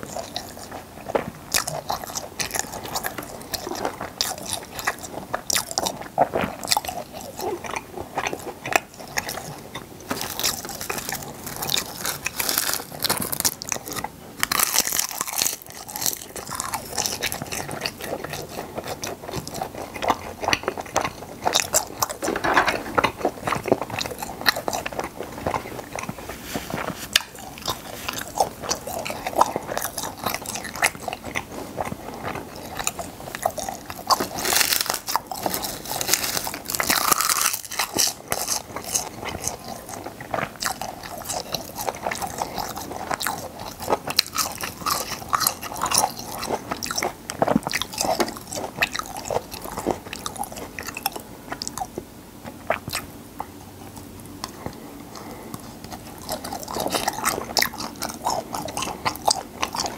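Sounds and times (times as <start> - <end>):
wet chewing mouth sounds: 0.0 - 59.9
crisp crunches: 10.1 - 18.4, 20.6 - 51.8.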